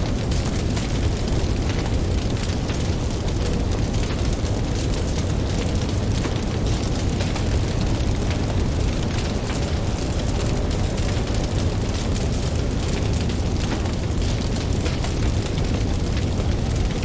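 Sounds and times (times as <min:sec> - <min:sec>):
campfire crackling and popping: 0:00.0 - 0:17.0
ocean surf rumble: 0:05.3 - 0:14.8.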